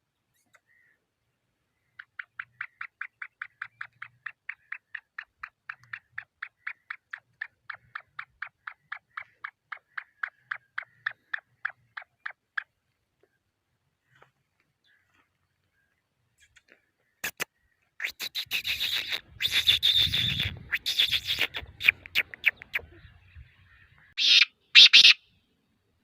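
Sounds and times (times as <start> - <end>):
francolin calling: 17.6 - 25.3.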